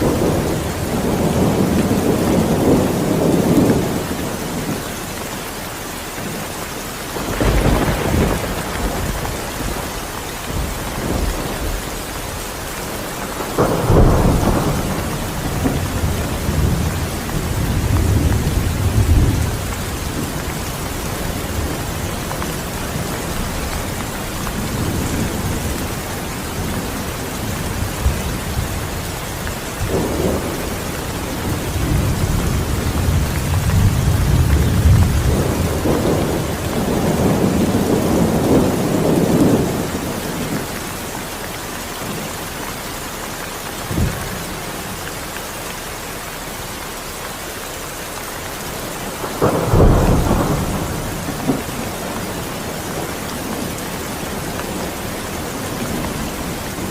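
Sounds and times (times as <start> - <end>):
steady rain: 0.0 - 56.9
rolling thunder: 7.1 - 40.8, 49.0 - 56.9.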